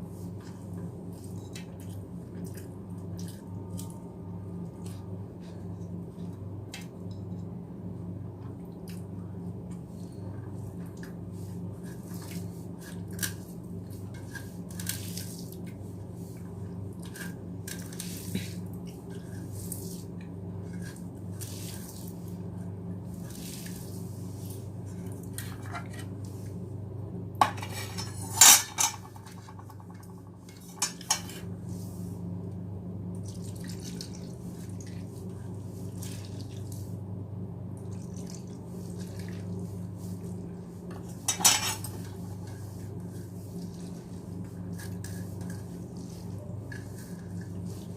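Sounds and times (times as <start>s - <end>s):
dishes clattering: 41.3s - 41.9s.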